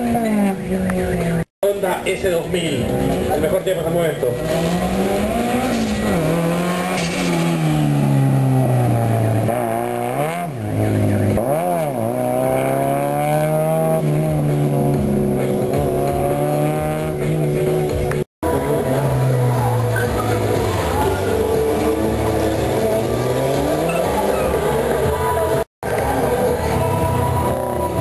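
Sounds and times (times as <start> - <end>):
car engine revving hard: 4.4 - 17.9, 18.6 - 25.6.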